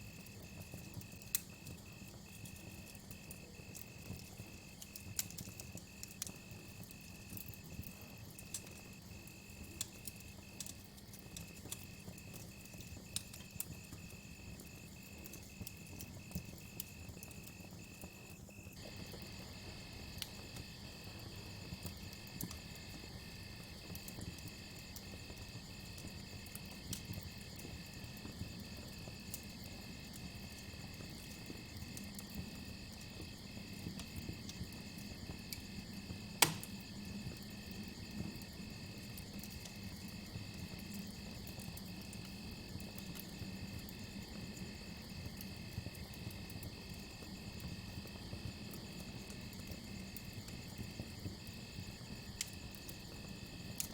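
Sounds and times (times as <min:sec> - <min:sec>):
campfire crackling and popping: 0:00.0 - 0:53.9
crickets chirping: 0:11.4 - 0:53.9.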